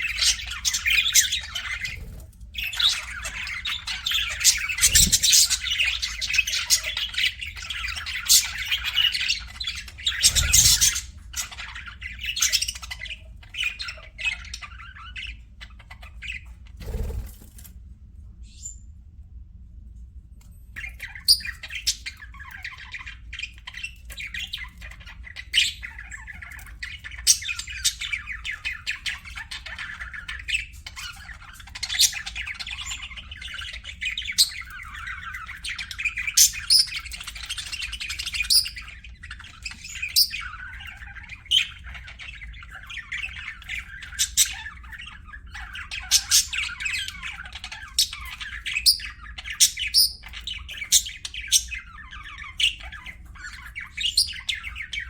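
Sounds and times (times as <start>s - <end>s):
sharp squawks and chirps: 0.0s - 17.4s
budgerigars chattering and warbling: 0.0s - 17.7s, 20.8s - 55.0s
faint low hum: 0.0s - 36.1s.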